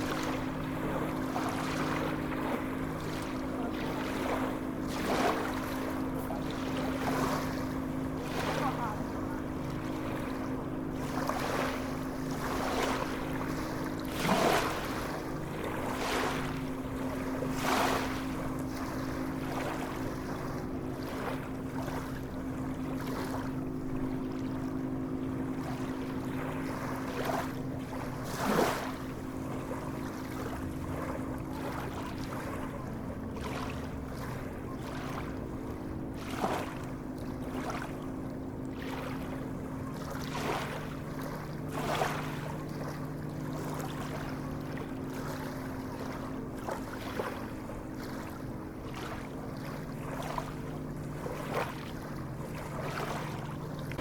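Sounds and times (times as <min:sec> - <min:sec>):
sea water washing and sloshing: 0:00.0 - 0:54.0
steady low hum: 0:00.0 - 0:54.0
water splashes: 0:00.0 - 0:54.0.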